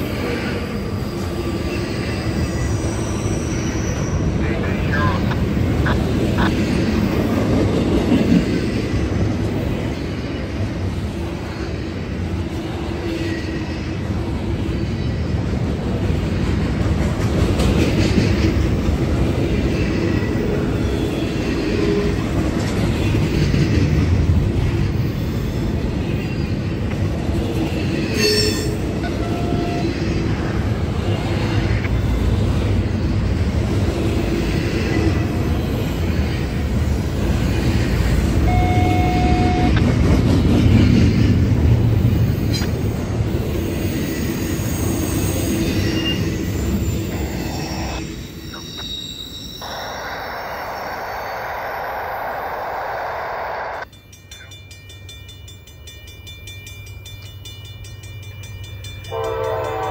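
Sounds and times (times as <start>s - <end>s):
train wheels rumbling on rail: 0.0s - 49.8s, 50.7s - 59.9s
wheel squeals: 0.8s - 4.4s, 43.7s - 49.6s.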